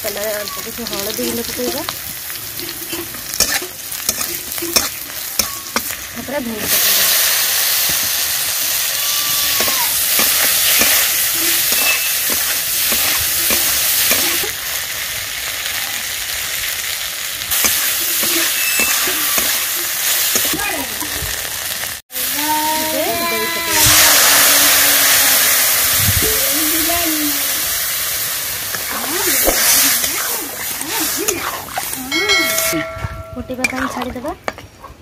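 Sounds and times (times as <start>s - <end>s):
okra sizzling in hot oil: 0.0s - 34.3s
metal spatula scraping a pan: 2.6s - 6.0s, 8.8s - 14.4s, 17.5s - 20.5s.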